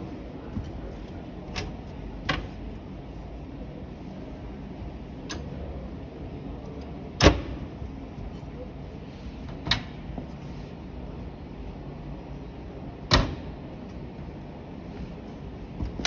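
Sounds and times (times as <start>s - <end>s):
shop hum: 0.0s - 16.0s
washing machine door clicks: 1.5s - 2.7s, 7.2s - 7.7s, 9.6s - 10.0s, 13.1s - 13.6s.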